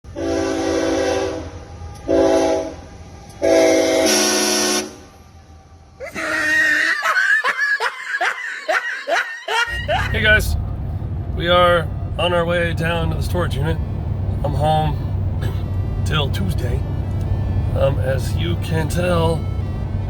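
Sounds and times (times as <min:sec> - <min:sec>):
air horn chord blasts: 0:00.1 - 0:02.8, 0:03.4 - 0:05.1
engine running: 0:09.7 - 0:20.0.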